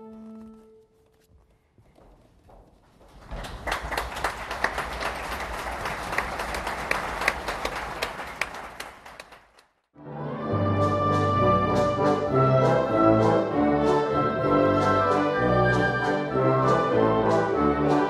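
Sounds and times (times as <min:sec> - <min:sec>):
audience applause: 0:03.0 - 0:09.8
orchestral music with brass: 0:10.0 - 0:18.0.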